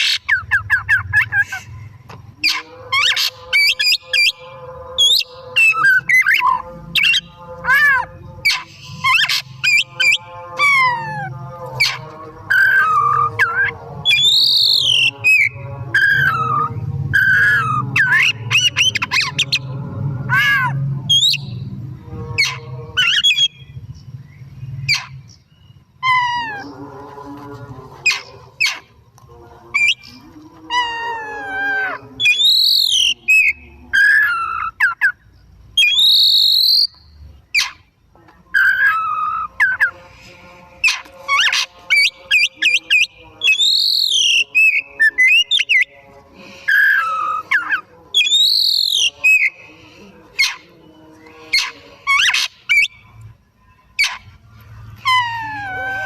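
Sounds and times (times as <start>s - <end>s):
bird singing whistled notes: 12.5s - 19.7s, 21.1s - 21.6s, 32.2s - 35.2s, 35.8s - 37.7s, 41.4s - 45.9s, 46.7s - 49.6s.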